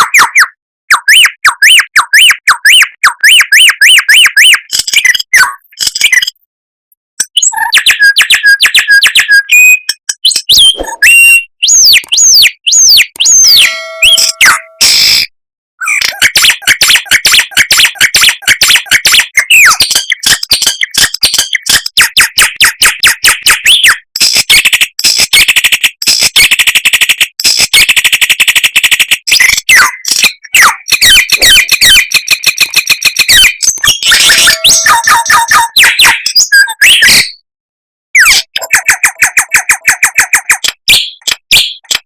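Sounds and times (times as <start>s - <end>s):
songbird singing: 10.4s - 14.8s.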